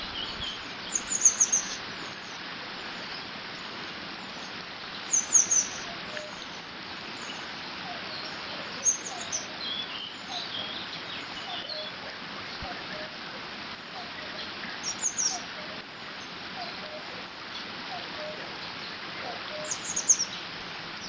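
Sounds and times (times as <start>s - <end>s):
soft bird chirps: 0.0s - 12.8s
birds singing: 0.0s - 13.1s, 13.8s - 21.0s
water running through a dam: 0.0s - 21.0s.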